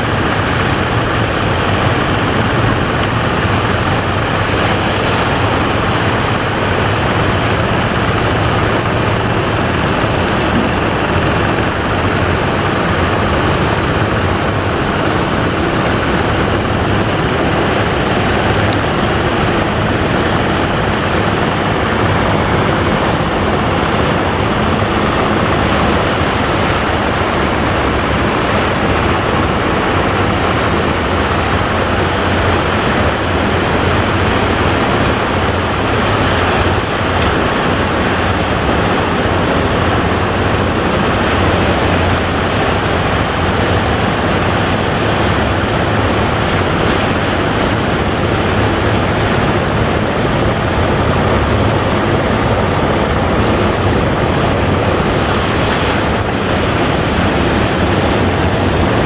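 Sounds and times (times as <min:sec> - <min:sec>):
ocean surf breaking: 0:00.0 - 0:59.0.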